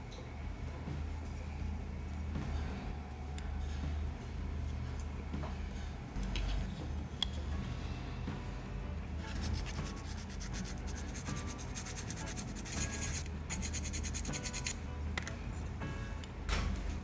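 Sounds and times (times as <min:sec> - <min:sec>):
hand filing scraping strokes: 0:09.3 - 0:14.8.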